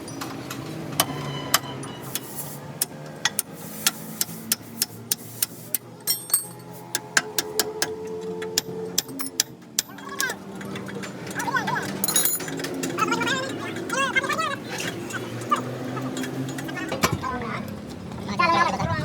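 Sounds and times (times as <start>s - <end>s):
hand tools striking metal: 12.0s - 12.7s.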